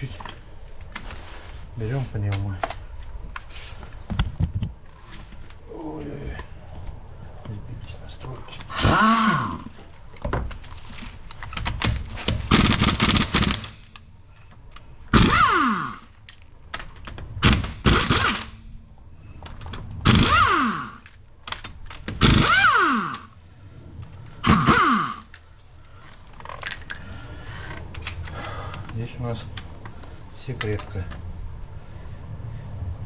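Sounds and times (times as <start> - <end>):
pneumatic impact wrench hammering: 8.7 - 9.8, 12.2 - 13.9, 15.1 - 16.2, 17.4 - 18.7, 20.0 - 21.1, 22.1 - 23.4, 24.4 - 25.3
air motor whine spinning down: 22.2 - 23.4.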